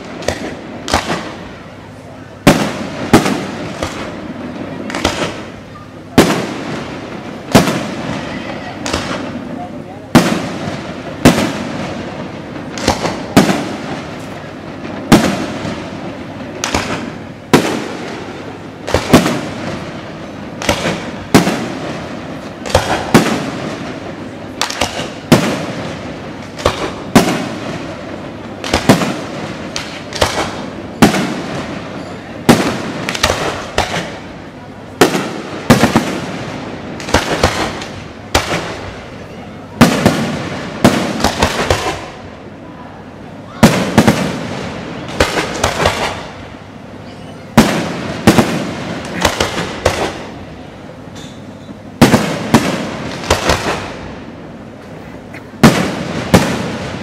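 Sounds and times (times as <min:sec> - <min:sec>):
small firework pops: 0:00.0 - 0:01.4, 0:02.5 - 0:04.2, 0:04.8 - 0:06.6, 0:07.5 - 0:09.4, 0:12.6 - 0:14.4, 0:16.6 - 0:18.2, 0:20.6 - 0:21.8, 0:22.4 - 0:23.9, 0:24.6 - 0:27.6, 0:28.6 - 0:31.5, 0:32.5 - 0:34.2, 0:37.0 - 0:39.0, 0:39.8 - 0:42.2, 0:45.0 - 0:46.4, 0:47.6 - 0:50.3
fireworks bursting with loud bangs: 0:00.0 - 0:57.0.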